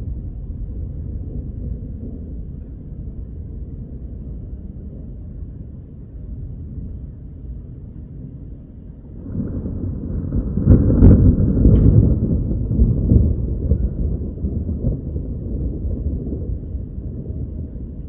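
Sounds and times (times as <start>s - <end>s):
thunder rumbling: 0.0s - 18.0s
sharp thunder cracks: 9.2s - 18.0s.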